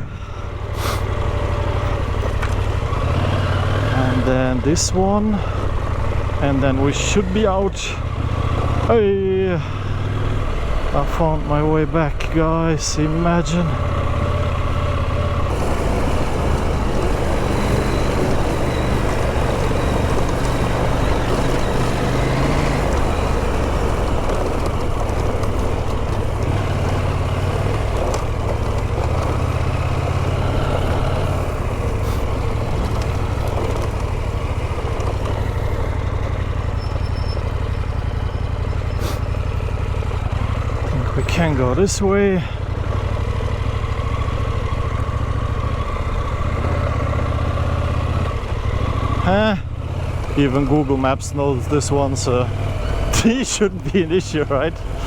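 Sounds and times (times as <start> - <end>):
motorcycle engine running: 0.0 - 55.0
steady rushing noise: 15.5 - 34.9.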